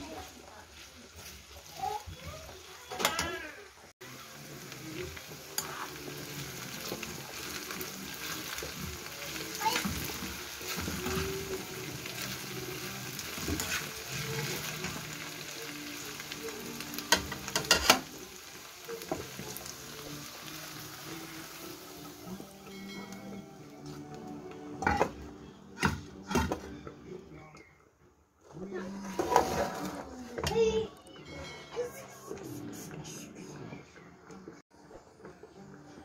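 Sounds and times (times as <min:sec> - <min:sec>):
vegetables sizzling in a pan: 0:00.0 - 0:26.6.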